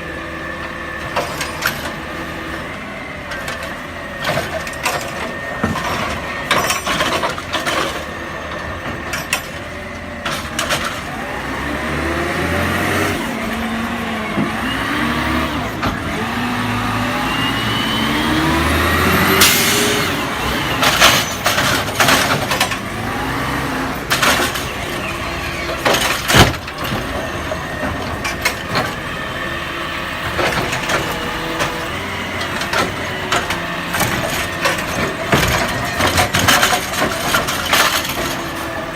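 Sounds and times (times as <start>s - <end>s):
garbage truck engine running: 0.0s - 38.9s
metal clanks and knocks: 3.3s - 11.1s, 20.7s - 23.1s, 24.0s - 29.2s, 30.2s - 38.9s.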